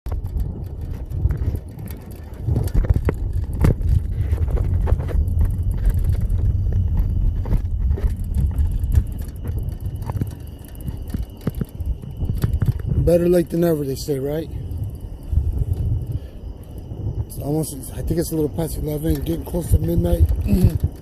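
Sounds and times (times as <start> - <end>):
wind rumble on microphone: 0.0 - 21.0
handling clicks and knocks: 0.1 - 13.6.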